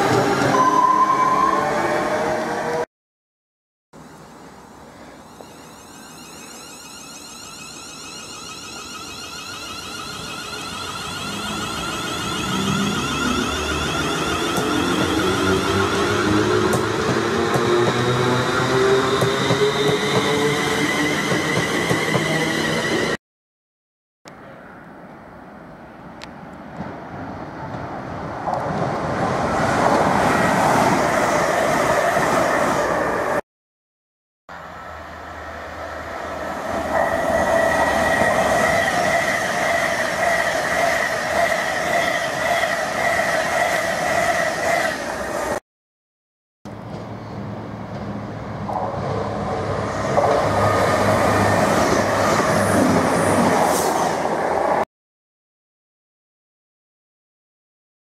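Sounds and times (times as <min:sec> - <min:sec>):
train wheels rushing on rail: 0:09.4 - 0:23.2, 0:36.0 - 0:45.6, 0:46.7 - 0:54.8.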